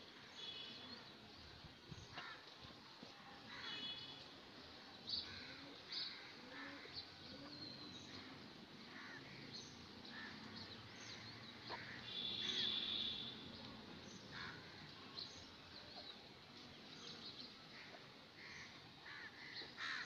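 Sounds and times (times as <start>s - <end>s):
birds chirping: 3.5s - 20.0s
long bird call: 5.2s - 13.6s.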